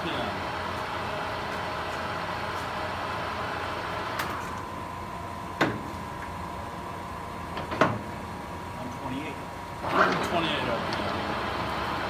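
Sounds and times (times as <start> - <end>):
lathe mechanical hum: 0.0 - 12.0.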